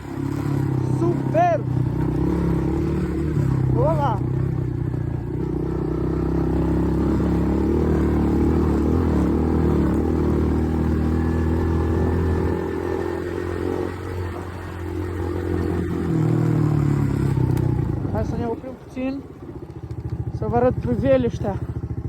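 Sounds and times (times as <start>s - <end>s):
atv engine running: 0.0s - 22.0s.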